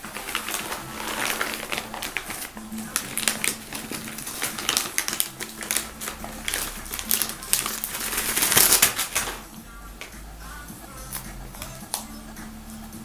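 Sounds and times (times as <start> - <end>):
dog crunching chew stick: 0.1 - 10.1.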